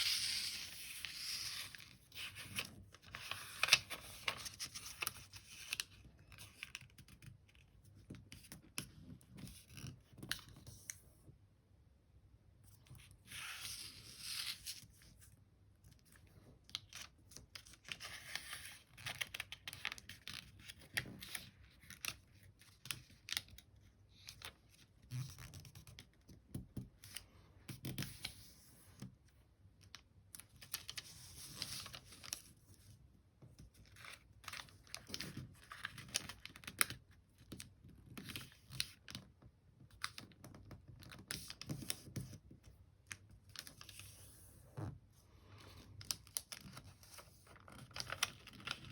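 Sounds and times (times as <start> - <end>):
paper rustling: 0.0 - 6.9.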